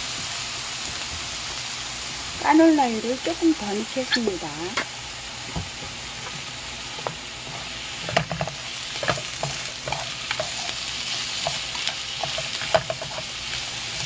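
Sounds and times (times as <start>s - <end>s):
food sizzling in oil: 0.0s - 14.0s.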